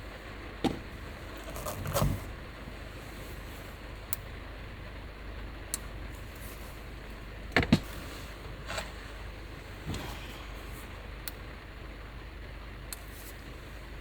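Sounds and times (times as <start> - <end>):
heavy rain on a van roof: 0.0 - 14.0
knocks on a van: 0.6 - 1.1, 7.5 - 7.9.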